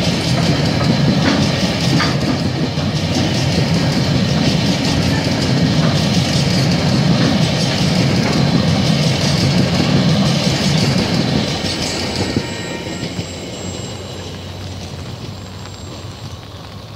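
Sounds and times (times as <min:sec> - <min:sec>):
freight train wheels clattering: 0:00.0 - 0:16.9
car tyres hissing on wet road: 0:13.3 - 0:16.9.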